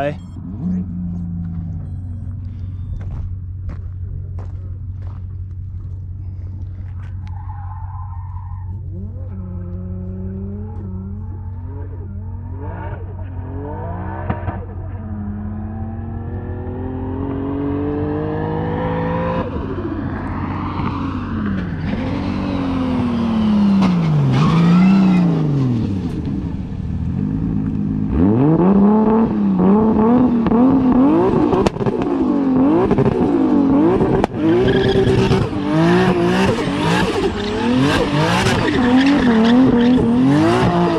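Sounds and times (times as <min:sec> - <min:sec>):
car engine revving: 0:00.0 - 0:40.9
steady low hum: 0:00.1 - 0:07.2
tires skidding: 0:06.8 - 0:15.4, 0:19.4 - 0:27.5, 0:31.0 - 0:40.9.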